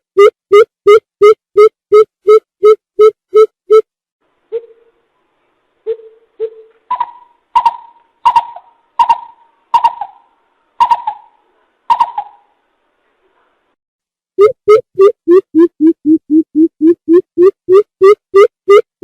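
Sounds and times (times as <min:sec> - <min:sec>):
bird hooting: 0:05.9 - 0:12.5.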